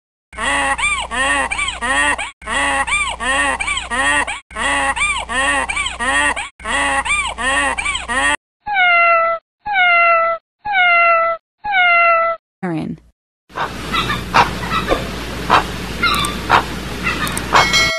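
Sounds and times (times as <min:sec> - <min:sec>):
cat meowing: 0:08.7 - 0:12.4.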